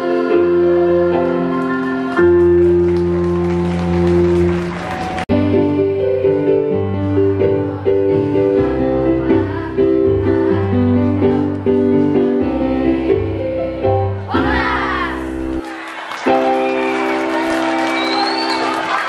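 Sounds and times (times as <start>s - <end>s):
girls' choir singing: 0.0s - 2.4s, 5.0s - 15.6s
keyboard accompaniment: 0.0s - 15.6s, 16.2s - 19.0s.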